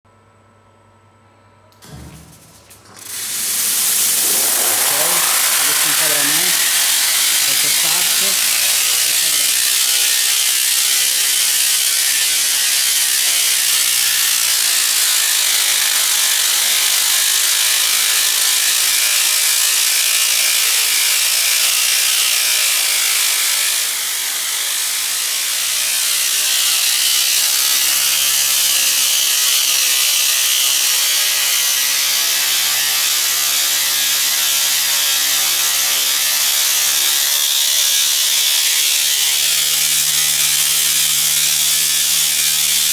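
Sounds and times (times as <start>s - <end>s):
mechanical rattle: 1.8s - 14.3s
conveyor belt cleaner hiss: 1.8s - 17.0s.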